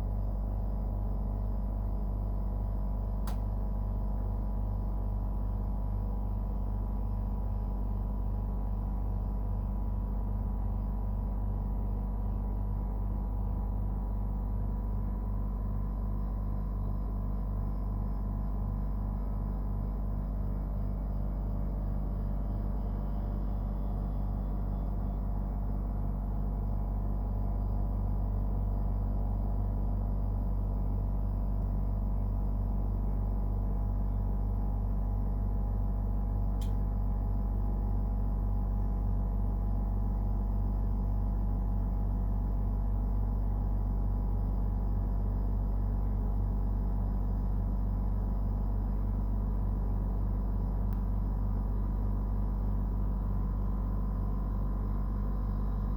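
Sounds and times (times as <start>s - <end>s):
air conditioner compressor humming: 0.0s - 55.9s
faint click: 3.2s - 3.5s, 36.6s - 36.8s, 50.9s - 51.1s.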